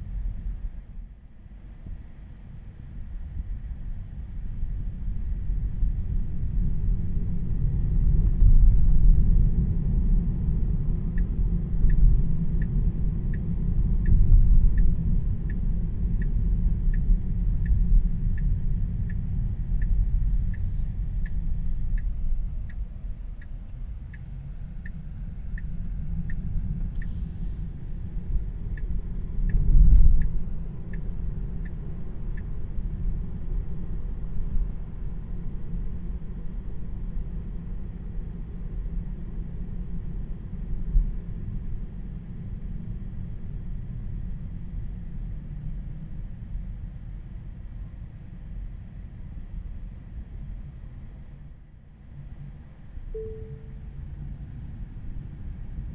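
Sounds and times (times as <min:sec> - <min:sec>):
road and tyre rumble: 0:00.0 - 0:55.9
turn signal ticking: 0:10.4 - 0:34.0.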